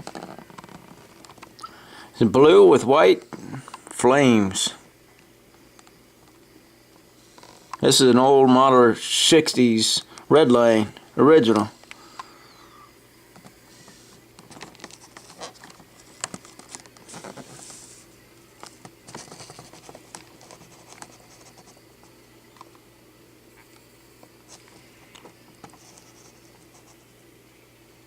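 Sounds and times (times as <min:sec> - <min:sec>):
toy car handling scratches and clicks: 0:13.8 - 0:17.8, 0:18.6 - 0:21.8.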